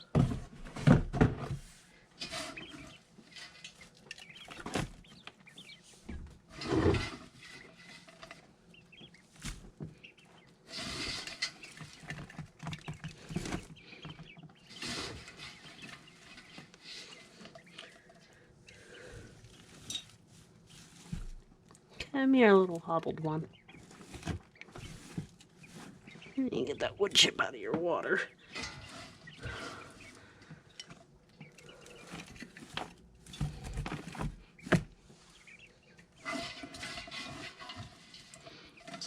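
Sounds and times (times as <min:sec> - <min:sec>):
knocks and handling noises: 0:00.0 - 0:21.9, 0:23.7 - 0:26.4, 0:28.5 - 0:35.0
wood-chip bedding rustling: 0:01.6 - 0:18.1, 0:18.8 - 0:27.0, 0:28.4 - 0:30.7, 0:31.6 - 0:39.0
chicks peeping and chirping: 0:02.2 - 0:21.2, 0:22.8 - 0:39.0.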